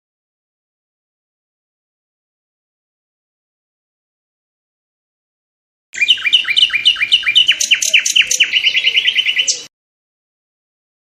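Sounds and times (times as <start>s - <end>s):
songbird singing: 6.0s - 9.7s.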